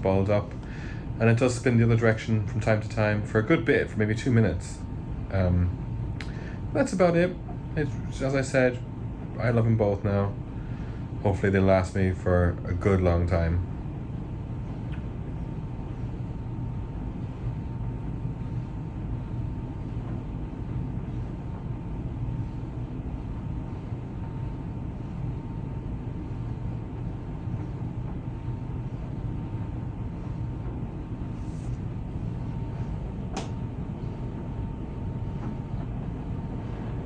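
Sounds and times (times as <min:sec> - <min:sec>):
tumble dryer rumbling: 0:00.0 - 0:37.0
sharp click: 0:33.3 - 0:33.6.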